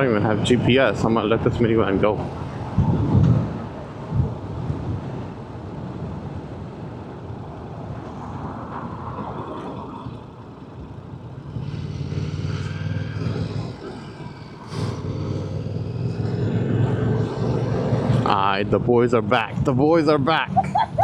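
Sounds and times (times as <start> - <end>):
passing traffic: 0.0 - 21.0
steady engine hum: 0.0 - 21.0.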